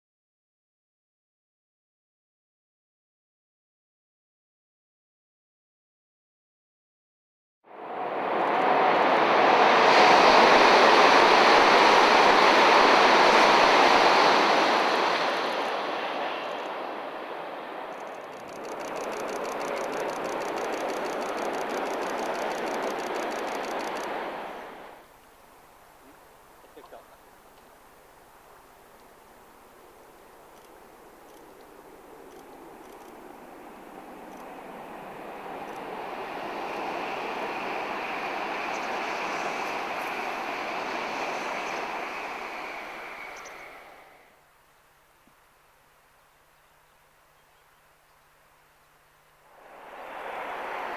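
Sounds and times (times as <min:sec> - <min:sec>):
high-speed train rushing past: 0:07.7 - 0:25.1, 0:29.2 - 0:44.5, 0:49.4 - 0:50.9
rapid high ticking: 0:17.9 - 0:24.2.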